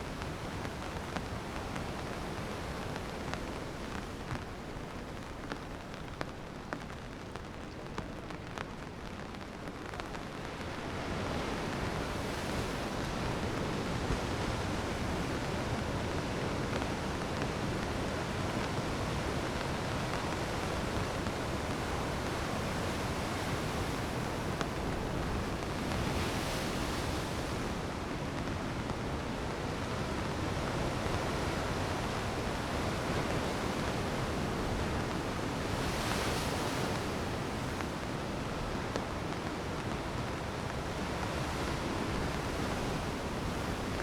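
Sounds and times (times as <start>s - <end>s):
sea waves breaking on rocks: 20.3s - 39.9s.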